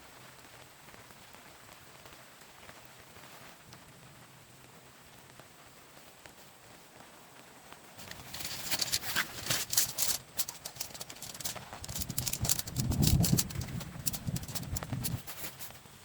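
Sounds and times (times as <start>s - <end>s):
irregular clicking and knocking: 8.0s - 15.8s.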